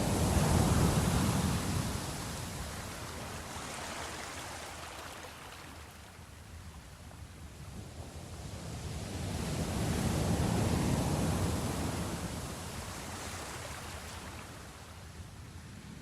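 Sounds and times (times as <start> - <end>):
sea wave rushing: 0.0 - 6.4, 8.6 - 14.9.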